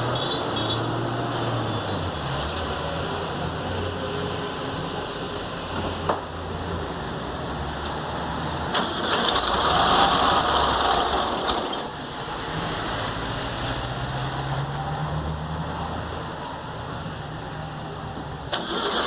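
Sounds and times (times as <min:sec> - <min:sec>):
engine with mechanical rattle: 0:07.8 - 0:12.2, 0:18.5 - 0:19.0.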